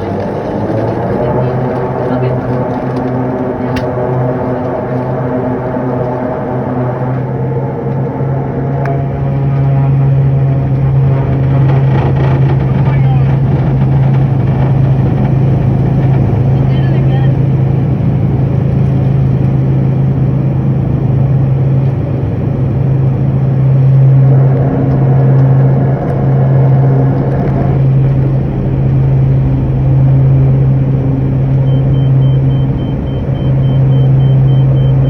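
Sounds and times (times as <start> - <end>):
aircraft engine drone: 0.0 - 35.0
rapid high-pitched beeping: 31.5 - 35.0.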